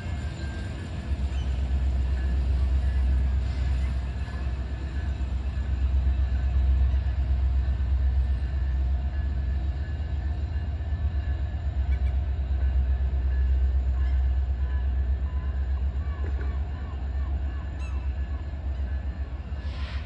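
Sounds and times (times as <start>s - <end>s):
faint steady tones: 0.0s - 19.7s
locomotive engine rumble: 0.0s - 20.0s.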